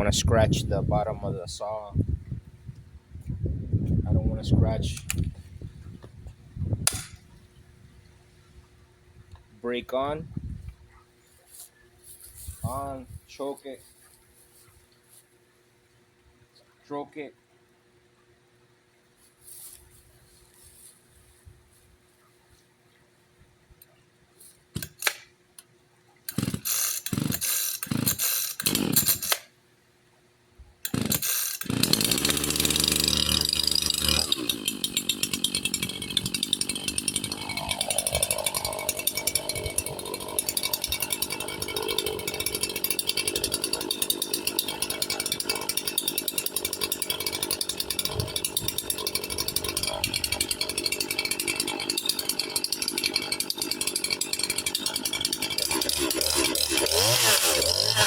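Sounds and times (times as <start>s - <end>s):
chainsaw starter rope pulls: 24.8s - 25.2s, 26.3s - 29.5s, 30.8s - 58.0s
chainsaw engine idling: 26.3s - 29.4s, 30.9s - 58.0s.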